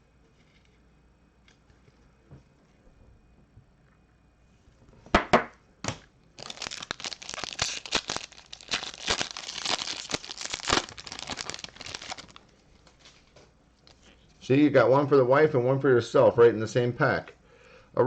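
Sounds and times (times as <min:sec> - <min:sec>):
wrapper ripping: 0:06.4 - 0:12.5
wrapper crinkling: 0:06.4 - 0:14.1.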